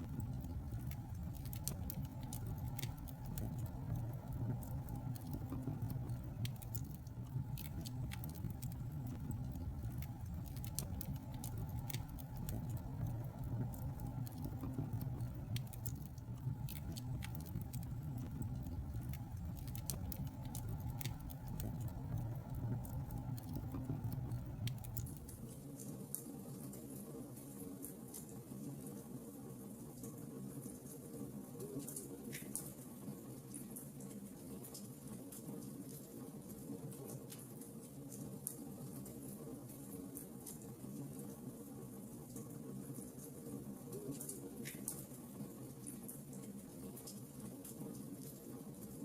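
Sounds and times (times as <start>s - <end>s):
wood fire crackling and popping: 0.0s - 25.6s.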